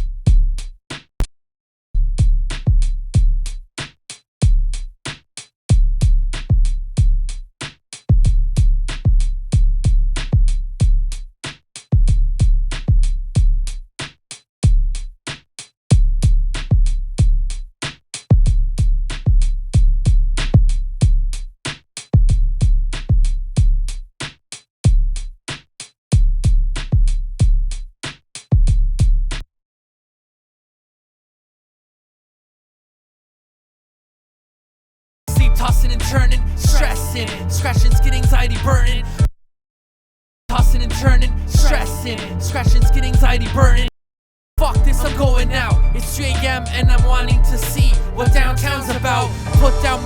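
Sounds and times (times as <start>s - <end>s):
deep sub-bass: 0.0s - 0.8s, 2.0s - 3.7s, 35.3s - 39.3s, 40.5s - 43.9s, 44.6s - 50.0s
hip-hop drum-machine beat: 2.2s - 25.6s, 26.2s - 29.4s, 35.3s - 39.3s, 40.5s - 43.9s, 44.6s - 50.0s.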